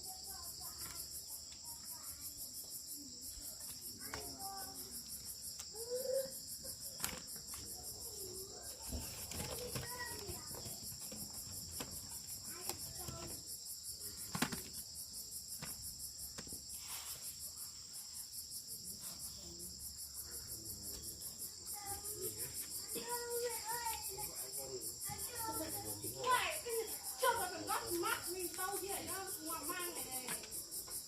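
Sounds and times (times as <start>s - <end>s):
insects buzzing and trilling: 0.0s - 31.0s
faint voices: 3.0s - 14.7s, 18.8s - 30.8s.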